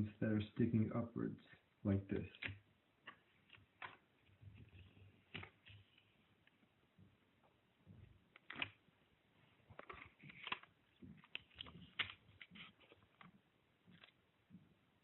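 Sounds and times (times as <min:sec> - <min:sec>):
paper crinkling: 0:08.3 - 0:08.8, 0:09.4 - 0:14.2.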